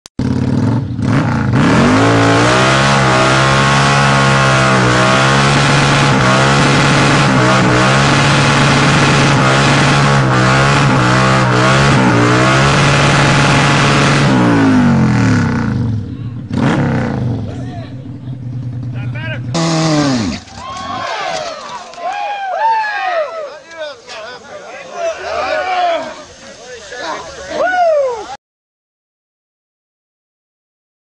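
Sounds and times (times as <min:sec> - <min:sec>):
motorcycle engine revving hard: 0:00.2 - 0:20.5.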